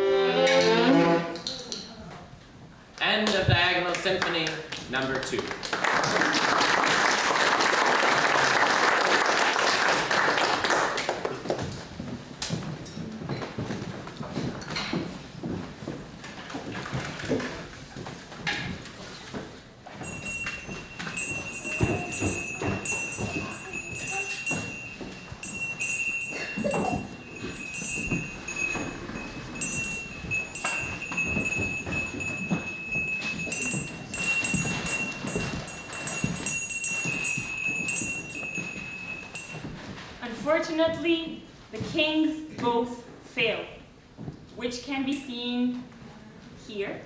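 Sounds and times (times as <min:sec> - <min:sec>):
knocks and thumps: 0:20.0 - 0:39.8
high ringing tone: 0:20.0 - 0:40.0.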